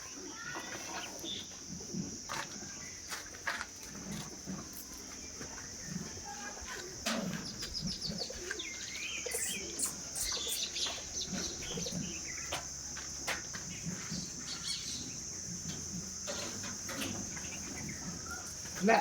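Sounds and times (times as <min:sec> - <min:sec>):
high insect drone: 0:00.0 - 0:19.0
birds chirping: 0:04.7 - 0:19.0.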